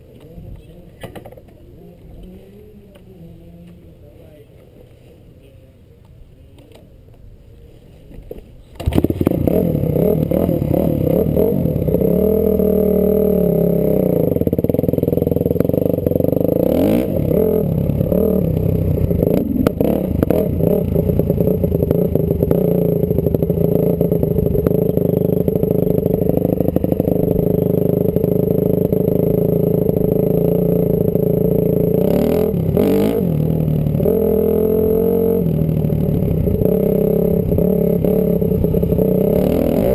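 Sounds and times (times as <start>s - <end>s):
motocross engine revving: 8.8s - 39.9s.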